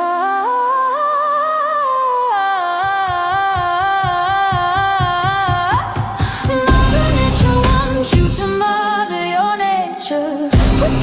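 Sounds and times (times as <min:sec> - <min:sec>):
steady drum beat: 0:02.8 - 0:08.6, 0:10.6 - 0:11.0.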